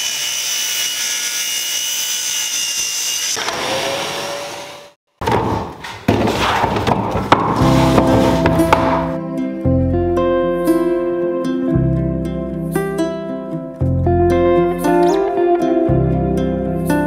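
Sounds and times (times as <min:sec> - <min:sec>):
power tool whining on wood: 0:00.0 - 0:04.9
woodworking noise with knocks: 0:05.2 - 0:09.2
background music: 0:07.4 - 0:17.0.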